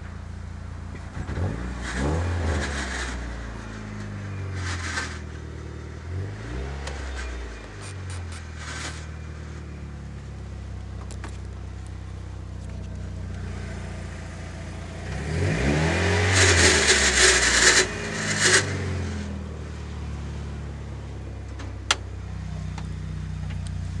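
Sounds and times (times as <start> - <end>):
car engine idling and revving: 0.0 - 24.0
loud noisy rasp: 16.3 - 19.2.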